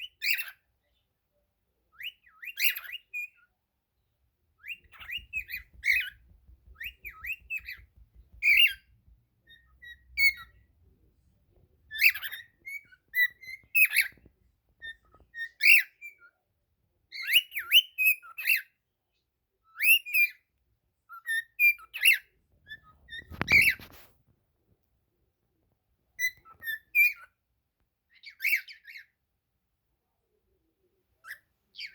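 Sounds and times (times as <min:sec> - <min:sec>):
cockatiel whistling: 0:00.0 - 0:00.6, 0:02.0 - 0:03.5, 0:04.6 - 0:10.6, 0:11.9 - 0:16.3, 0:17.1 - 0:18.7, 0:19.7 - 0:20.4, 0:21.1 - 0:24.0, 0:26.2 - 0:27.3, 0:28.1 - 0:29.1.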